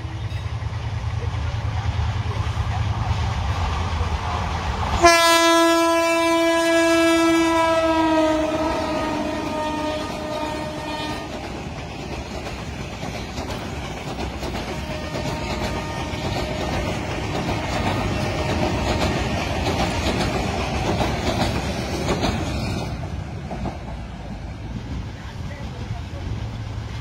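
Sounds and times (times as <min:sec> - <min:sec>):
train wheels clattering over rails: 0:00.0 - 0:27.0
locomotive horn: 0:05.0 - 0:11.4, 0:14.6 - 0:18.8.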